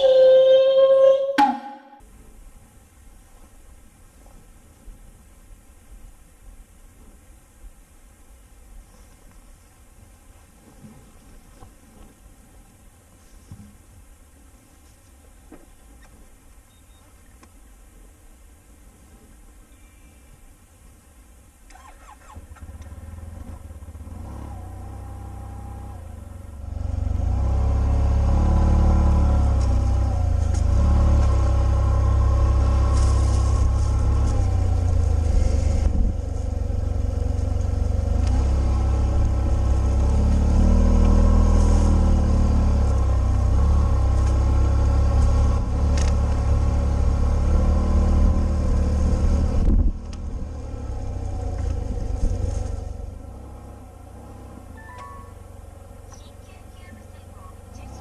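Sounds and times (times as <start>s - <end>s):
scooter engine running: 21.7s - 58.0s.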